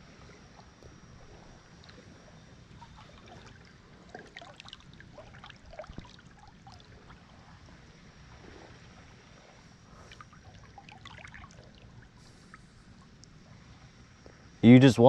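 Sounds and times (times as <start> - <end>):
river water trickling: 0.0 - 14.6
small splashes: 2.7 - 12.7.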